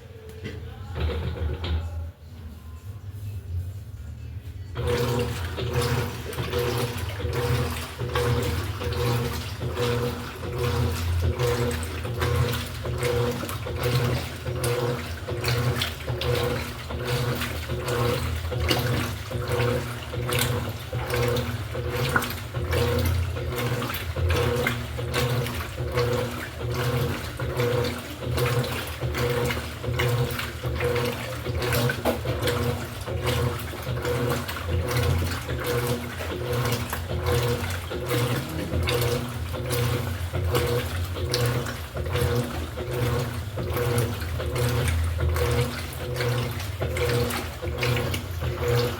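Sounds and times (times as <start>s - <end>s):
low motor hum: 0.0s - 48.9s
water churning and splashing: 4.8s - 48.9s.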